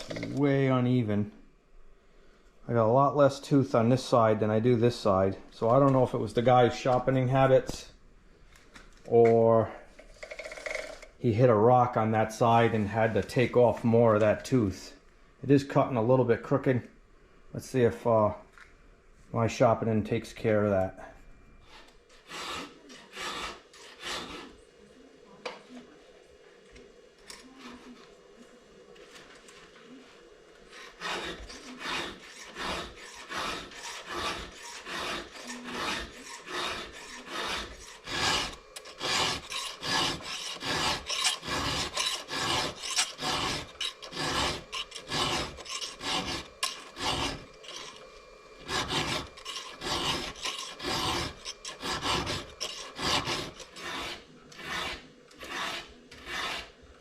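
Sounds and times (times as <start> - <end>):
hand file scraping chainsaw chain: 22.2 - 24.5, 30.7 - 56.8.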